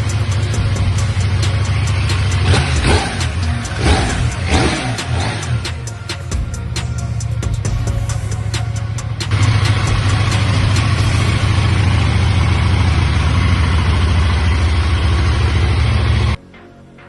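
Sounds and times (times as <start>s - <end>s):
motorcycle engine idling: 0.0s - 16.4s.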